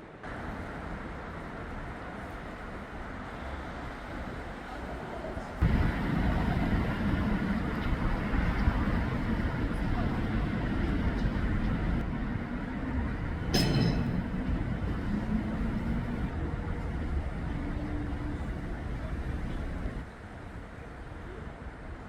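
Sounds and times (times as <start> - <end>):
low traffic rumble: 0.0 - 22.0
short sharp ringing sound: 13.5 - 14.4.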